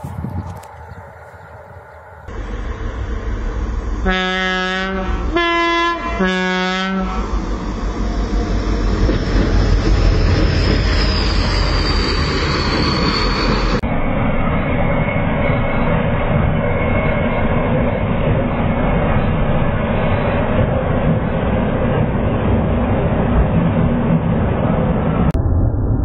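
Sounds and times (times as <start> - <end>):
train rumble passing by: 0.0 - 26.0
two-tone train horn blasts: 4.0 - 7.4.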